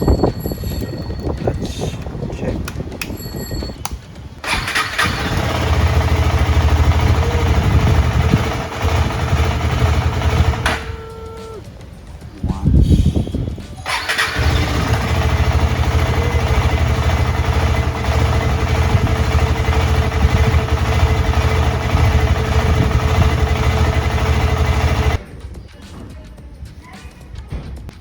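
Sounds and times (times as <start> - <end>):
motorcycle engine starting and idling: 4.4 - 11.6, 13.8 - 25.2.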